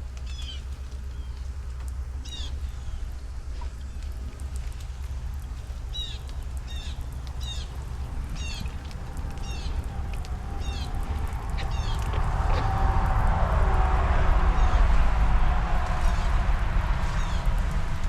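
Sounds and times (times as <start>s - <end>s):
low rumble: 0.0s - 18.0s
bird chirping: 5.9s - 12.6s.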